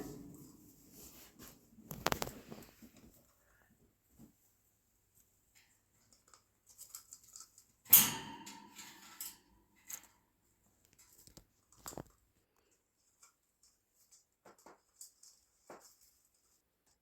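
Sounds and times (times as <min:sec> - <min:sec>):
packaging crinkling and tearing: 0:01.9 - 0:02.7
sharp crackles: 0:01.9 - 0:02.7.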